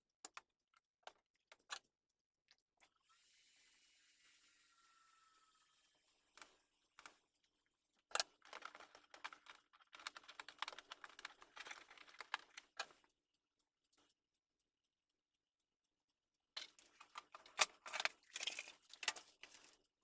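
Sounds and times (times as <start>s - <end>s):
plastic parts clicking: 8.1s - 13.0s, 16.6s - 19.8s
rapid clicking and rattling: 8.1s - 13.1s, 16.6s - 19.9s.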